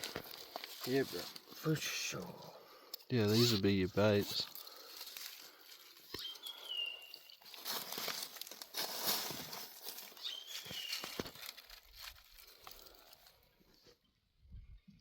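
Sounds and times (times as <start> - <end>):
crinkling and rustling: 0.0 - 2.2, 3.2 - 6.5, 7.2 - 14.0
falling whistle-like squeaks: 10.2 - 11.2.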